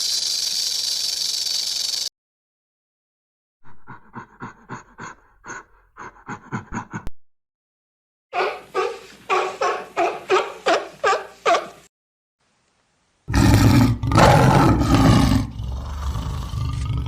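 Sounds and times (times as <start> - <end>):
animal short pitched calls: 8.4 - 11.8
animal low roar: 13.3 - 17.0.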